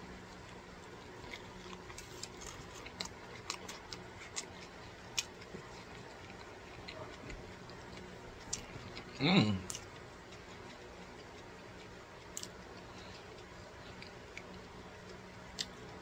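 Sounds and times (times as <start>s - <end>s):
chewing crunchy food: 0.1s - 16.0s.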